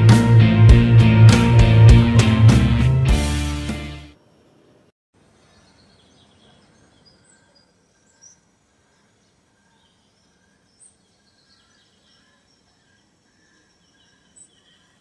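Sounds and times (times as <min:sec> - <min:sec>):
faint bird chirps: 0:04.3 - 0:15.0.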